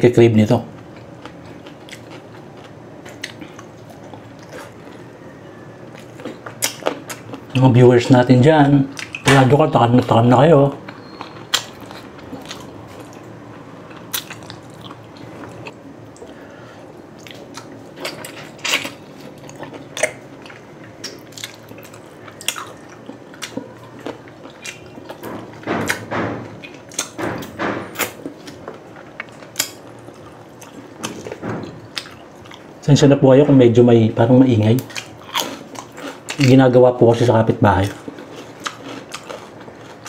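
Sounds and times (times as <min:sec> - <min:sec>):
wet chewing smacks and clicks: 0:05.9 - 0:07.5, 0:13.9 - 0:16.4, 0:17.2 - 0:25.2, 0:37.9 - 0:40.0.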